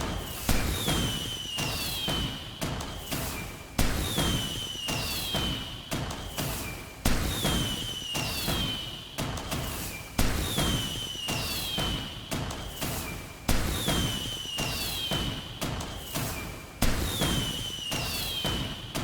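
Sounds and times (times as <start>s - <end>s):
falling whistle: 1.0s - 2.3s, 10.6s - 12.0s, 17.2s - 18.7s.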